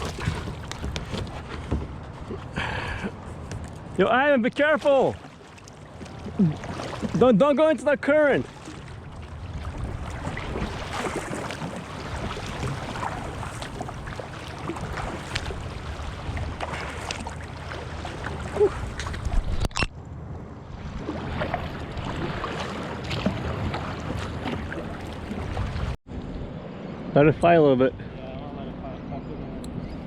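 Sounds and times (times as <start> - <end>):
water splashing around kayak: 0.0 - 19.9, 20.6 - 26.0
wind buffeting microphone: 8.9 - 19.7.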